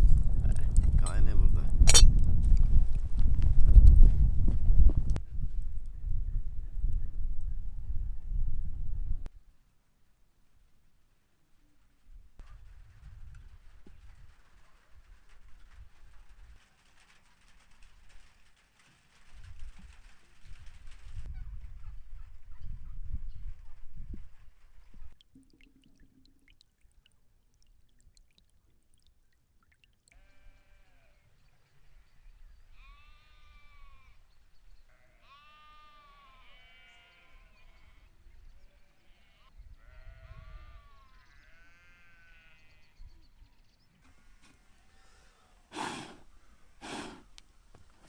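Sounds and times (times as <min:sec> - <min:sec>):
sheep bleating: 0:30.1 - 0:31.2, 0:34.9 - 0:38.1, 0:38.8 - 0:42.8.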